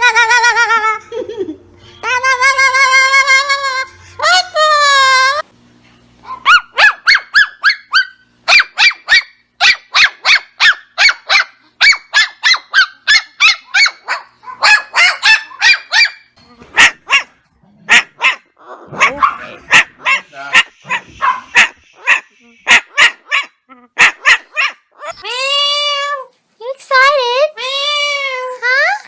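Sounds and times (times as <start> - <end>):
animal barking sharply: 16.8 - 24.8.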